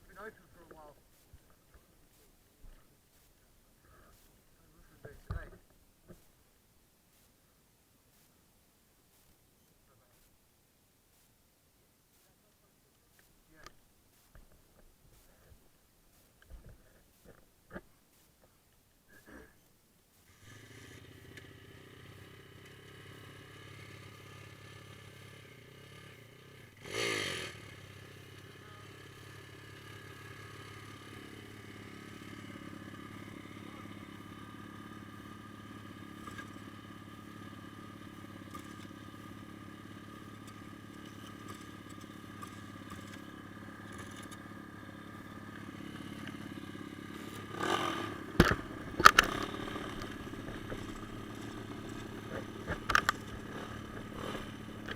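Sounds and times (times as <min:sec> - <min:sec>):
small motorbike engine running: 0:20.3 - 0:54.9.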